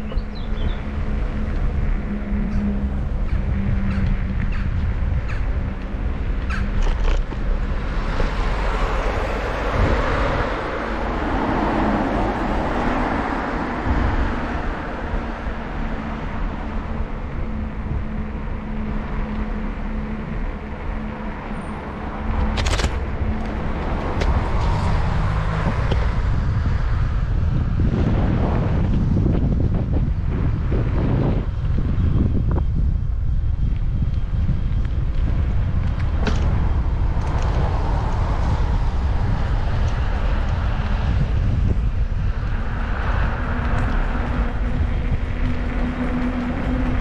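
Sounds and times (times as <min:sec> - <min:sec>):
motor vehicle passing: 0:00.0 - 0:32.9
wind rumbling on microphone: 0:00.0 - 0:47.0.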